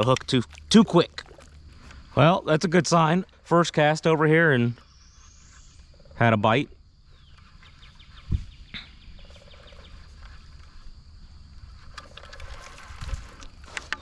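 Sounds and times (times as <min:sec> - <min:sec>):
high insect drone: 0:00.0 - 0:14.0
bird chirps: 0:07.1 - 0:10.1.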